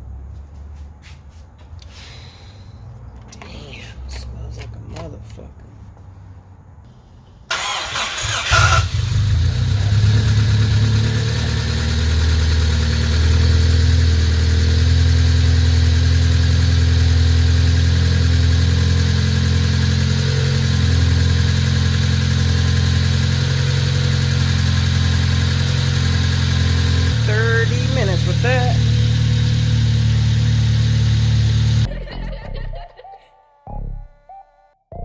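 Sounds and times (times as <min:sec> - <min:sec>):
car engine cranking and idling: 0:07.5 - 0:31.9.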